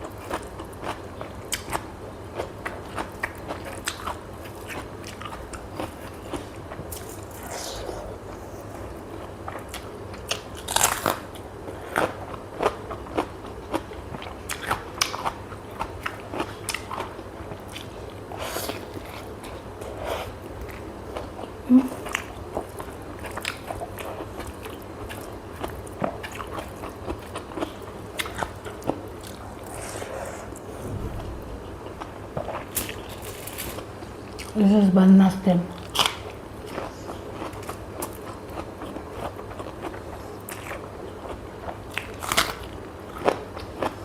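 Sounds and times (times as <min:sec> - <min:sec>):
person chewing crunchy food: 0:02.4 - 0:31.4, 0:35.8 - 0:44.0
low tone: 0:30.7 - 0:32.6.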